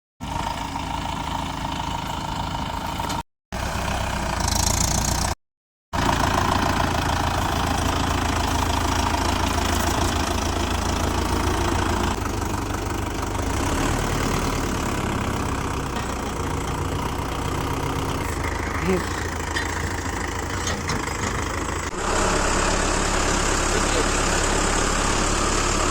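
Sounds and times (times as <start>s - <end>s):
diesel tractor engine idling: 0.2s - 5.4s, 6.0s - 25.9s.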